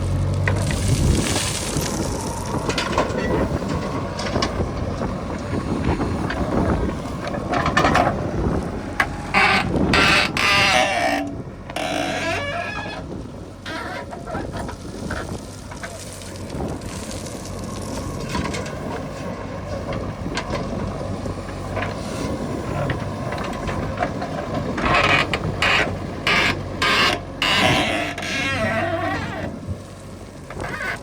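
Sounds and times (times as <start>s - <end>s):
heavy machine engine running: 0.0s - 31.0s
mechanical clatters and knocks: 0.4s - 17.2s, 17.9s - 29.7s.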